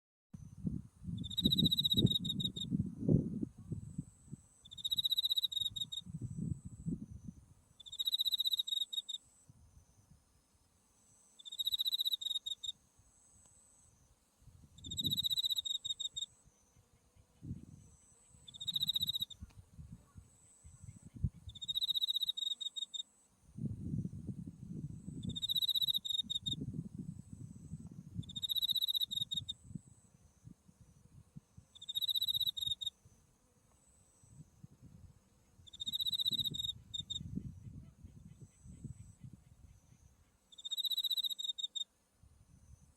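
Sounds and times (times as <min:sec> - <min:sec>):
cricket trilling: 0:00.4 - 0:02.8, 0:03.6 - 0:10.2, 0:11.0 - 0:24.2, 0:24.8 - 0:42.9
wind on microphone: 0:00.4 - 0:04.1, 0:05.6 - 0:07.6, 0:14.5 - 0:15.4, 0:17.4 - 0:17.9, 0:18.5 - 0:21.8, 0:23.6 - 0:31.7, 0:34.3 - 0:40.0.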